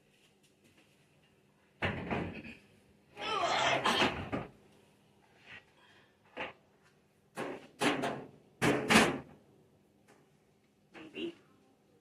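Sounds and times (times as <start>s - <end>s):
objects knocking on kitchen counter: 1.8s - 2.4s, 7.3s - 9.3s.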